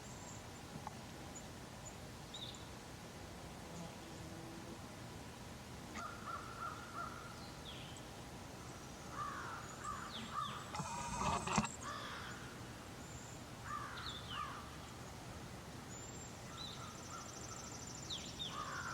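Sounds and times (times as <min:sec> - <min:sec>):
outdoor background noise: 0:00.0 - 0:18.9
birds calling: 0:05.9 - 0:15.0, 0:15.9 - 0:18.9.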